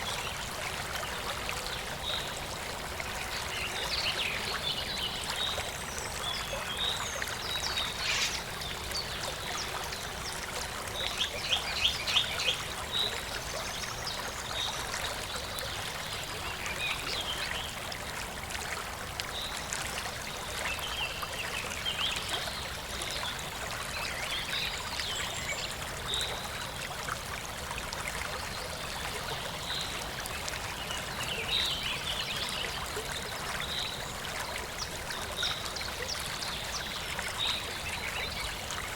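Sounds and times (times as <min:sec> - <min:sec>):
stream trickling: 0:00.0 - 0:38.9
small birds chirping: 0:06.3 - 0:09.2.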